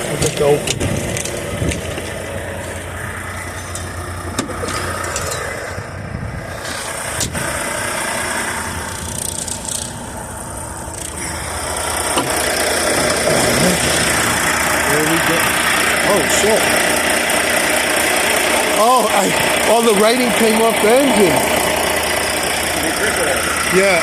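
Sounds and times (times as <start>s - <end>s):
diesel engine idling: 0.0s - 24.0s
sharp knocks: 12.1s - 14.2s.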